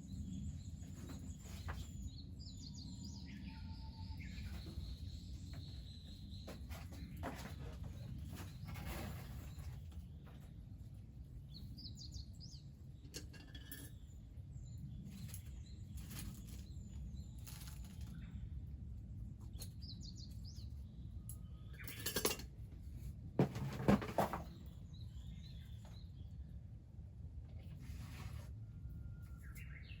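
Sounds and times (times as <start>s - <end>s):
small bird singing: 0.0s - 8.7s, 11.5s - 18.6s, 29.0s - 30.0s.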